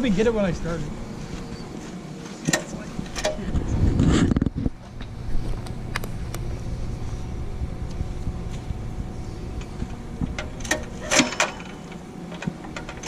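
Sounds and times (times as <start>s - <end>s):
diesel generator engine rumbling: 0.0s - 13.0s
engine clacks: 4.7s - 13.0s.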